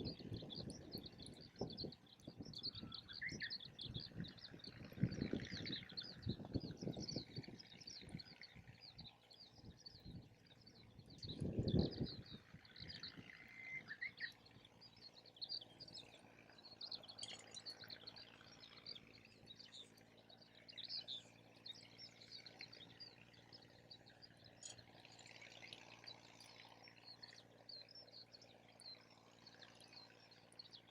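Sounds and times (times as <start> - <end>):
wind buffeting microphone: 0.0 - 13.5
small birds chirping: 0.0 - 30.9.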